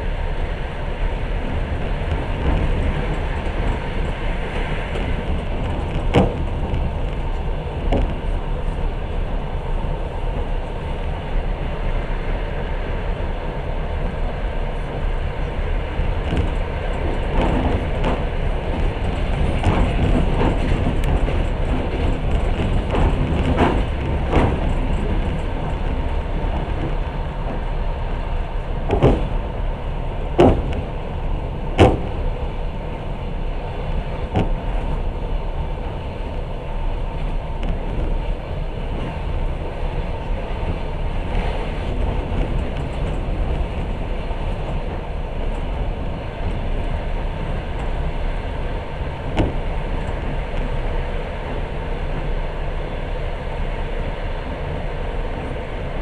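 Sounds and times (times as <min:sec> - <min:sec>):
train wheels rumbling on rails: 0:00.0 - 0:56.0
sharp knocks: 0:30.4 - 0:30.9, 0:31.8 - 0:32.2.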